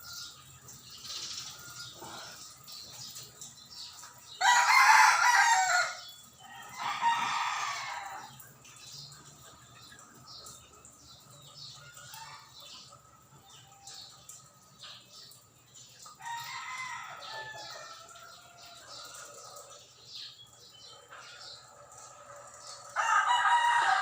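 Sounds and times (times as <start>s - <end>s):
birds calling: 0.0s - 24.0s.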